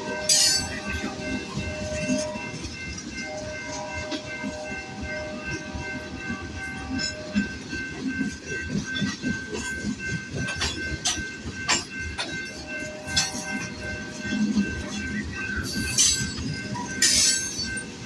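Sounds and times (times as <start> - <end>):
freight train rolling past: 0.0 - 18.0
high-pitched ringing tones: 0.0 - 18.0
wheels clicking over rail joints: 6.6 - 18.0.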